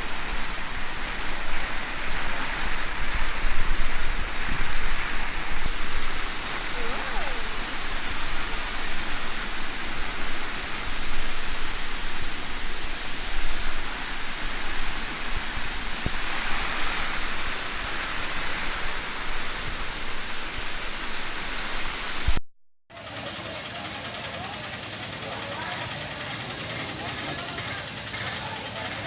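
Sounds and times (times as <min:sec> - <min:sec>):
heavy rain pouring: 0:00.0 - 0:22.4.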